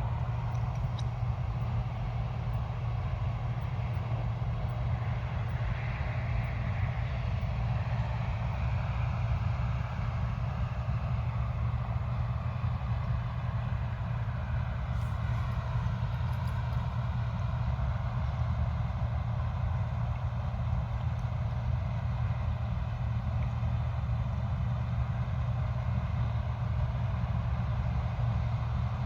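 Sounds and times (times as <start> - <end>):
diesel engine running under load: 0.0 - 29.0
faint clicks: 0.4 - 1.2.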